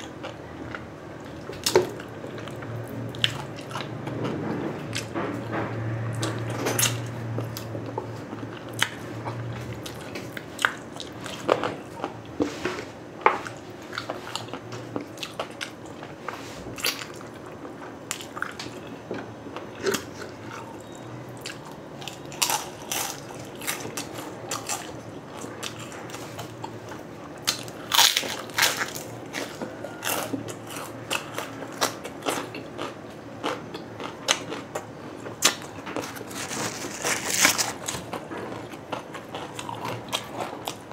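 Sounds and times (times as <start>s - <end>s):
crispy food crunching: 16.8s - 40.9s.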